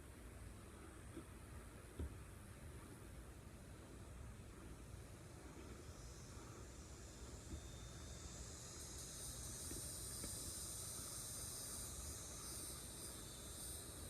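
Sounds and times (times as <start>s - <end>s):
insects chirring: 3.9s - 14.0s.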